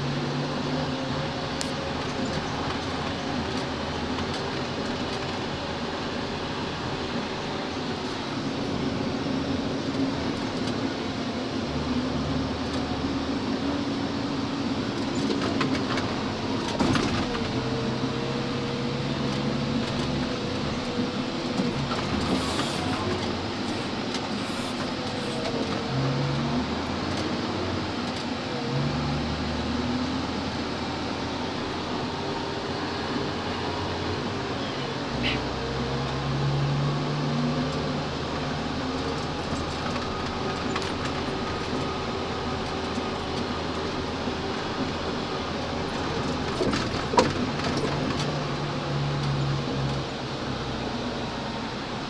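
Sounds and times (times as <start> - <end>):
truck engine running: 0.0 - 52.0
truck body rattling and knocking: 39.0 - 48.8.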